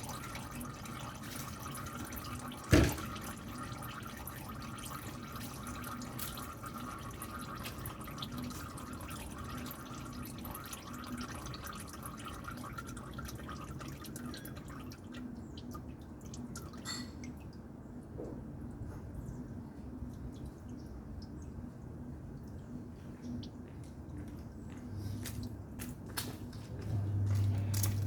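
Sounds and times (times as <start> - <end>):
oil trickling into a pan: 0.0 - 18.1
oil drips: 0.0 - 26.0, 27.1 - 28.0.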